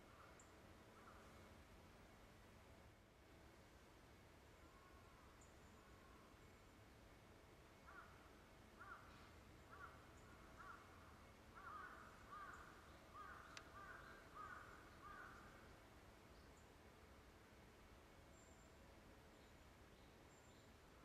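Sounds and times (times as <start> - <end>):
distant bird calling: 7.8 - 15.8
faint click: 13.4 - 13.8.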